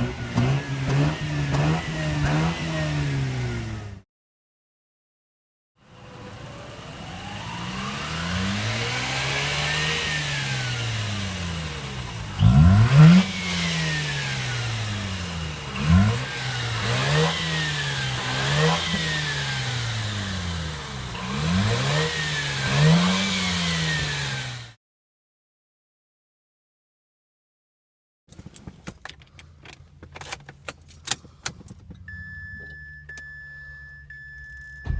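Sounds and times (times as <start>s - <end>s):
rotary engine revving: 0.0s - 4.0s, 6.1s - 24.8s.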